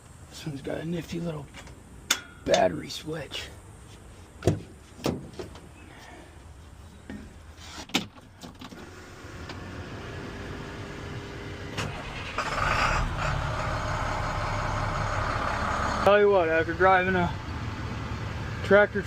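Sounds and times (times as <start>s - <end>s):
forklift engine rumbling: 8.8s - 19.0s.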